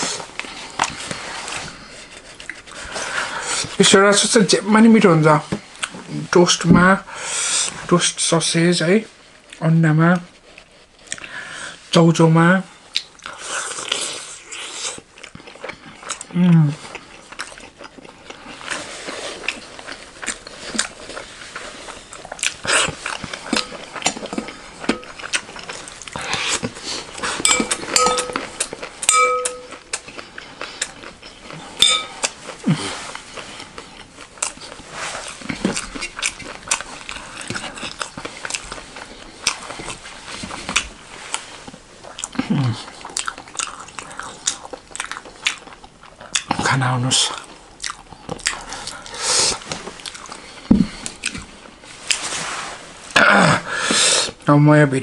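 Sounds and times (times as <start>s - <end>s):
biting and chewing food: 0.0s - 3.8s, 12.9s - 52.3s
tableware clinking: 27.4s - 29.9s, 31.3s - 32.3s.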